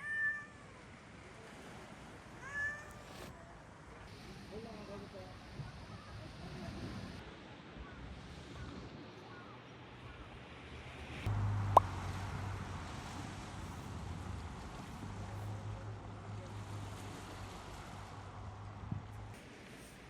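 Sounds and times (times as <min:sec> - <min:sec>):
engine humming: 0:10.9 - 0:19.4.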